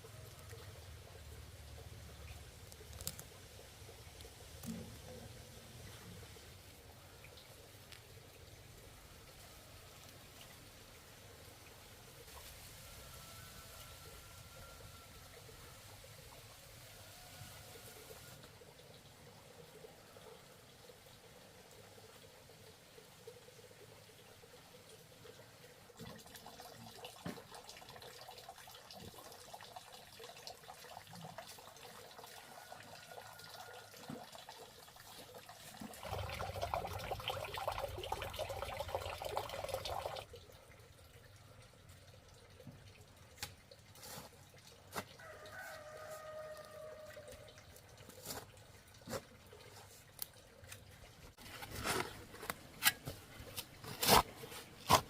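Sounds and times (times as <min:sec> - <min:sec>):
water splashing: 0:34.9 - 0:40.6.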